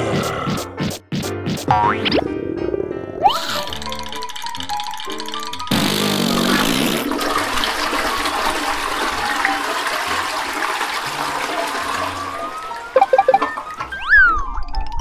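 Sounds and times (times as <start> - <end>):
toilet flushing: 5.7 - 14.1
water rushing through pipes: 6.4 - 15.0.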